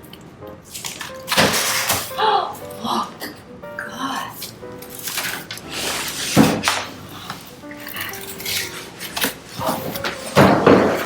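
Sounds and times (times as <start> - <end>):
background music: 0.0 - 11.0
cardboard box knocks and scrapes: 9.6 - 11.0.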